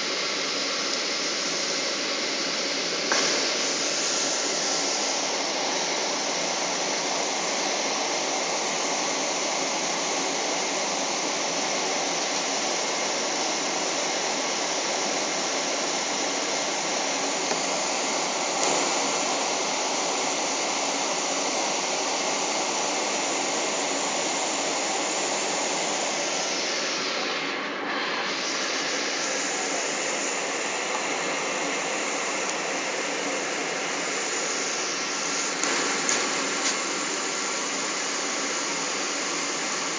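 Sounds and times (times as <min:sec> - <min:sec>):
airplane cabin engine roar: 0:23.8 - 0:39.9.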